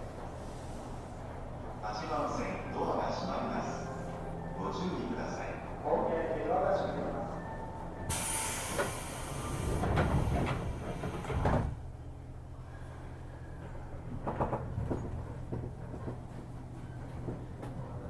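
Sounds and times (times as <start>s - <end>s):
train car low hum: 0.0s - 18.0s
train doors air hiss: 8.1s - 11.8s
sliding doors thumping shut: 8.7s - 11.8s.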